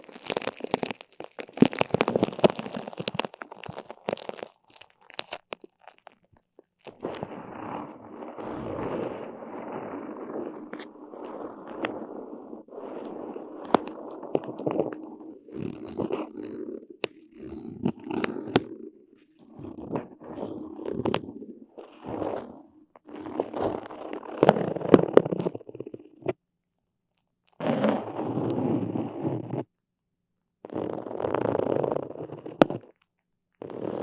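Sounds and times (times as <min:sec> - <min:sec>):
sticky surface pulled apart: 0:00.0 - 0:25.9.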